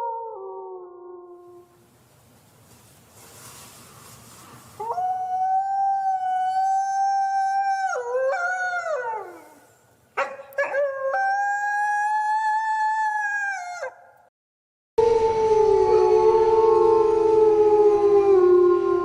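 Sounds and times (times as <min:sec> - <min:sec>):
wolf howling: 0:04.8 - 0:09.6, 0:15.0 - 0:19.0.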